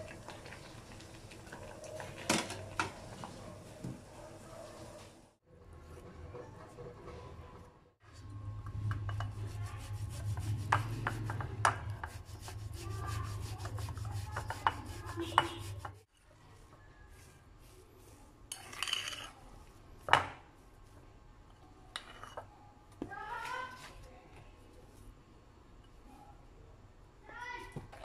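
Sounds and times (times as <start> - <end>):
potato rasping on grater: 9.4 - 11.4, 12.0 - 16.0.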